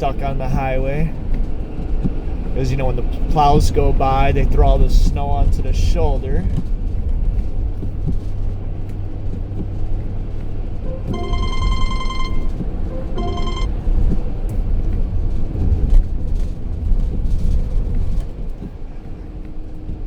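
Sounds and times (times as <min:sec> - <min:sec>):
car road and engine rumble: 0:00.0 - 0:10.8, 0:13.9 - 0:20.0
phone ringtone: 0:10.9 - 0:13.7.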